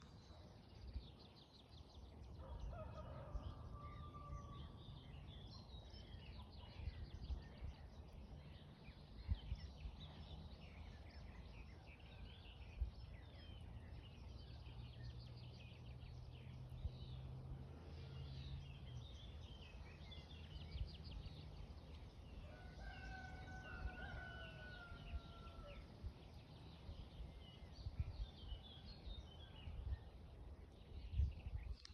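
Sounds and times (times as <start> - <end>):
songbirds chirping: 0.0 - 31.9
rooster crowing faintly: 22.4 - 25.9.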